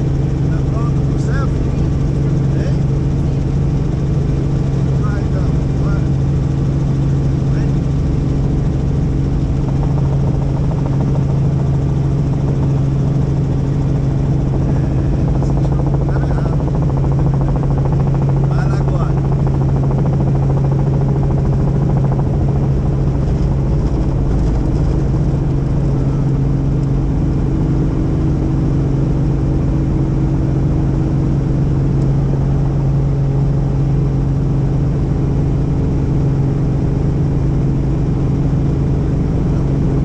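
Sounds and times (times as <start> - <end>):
helicopter in flight: 0.0 - 40.0.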